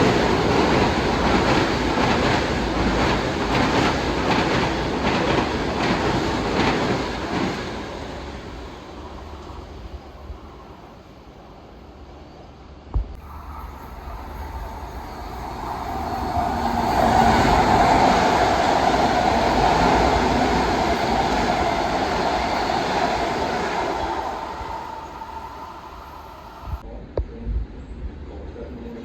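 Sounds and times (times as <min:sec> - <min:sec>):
train passing on tracks: 0:00.0 - 0:26.8.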